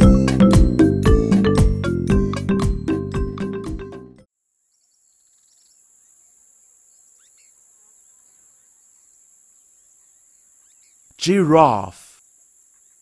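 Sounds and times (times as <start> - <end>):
faint chirps: 4.7 - 13.0.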